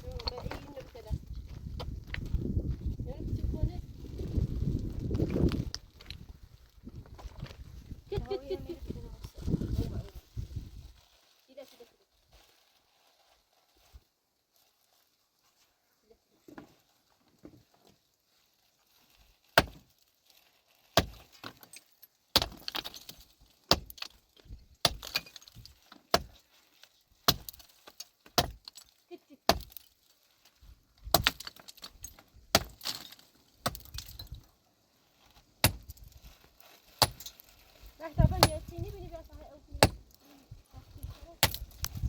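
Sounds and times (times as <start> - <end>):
loose stones clattering: 0.0 - 2.5, 20.9 - 34.6, 35.2 - 40.2, 40.9 - 42.0
pickaxe striking rock: 19.6 - 19.8, 21.0 - 21.6, 22.3 - 24.2, 24.8 - 26.4, 27.2 - 27.6, 28.3 - 28.7, 29.5 - 29.8, 31.0 - 34.4, 35.6 - 36.0, 37.0 - 37.3, 38.3 - 38.7, 39.8 - 40.1, 41.4 - 42.0.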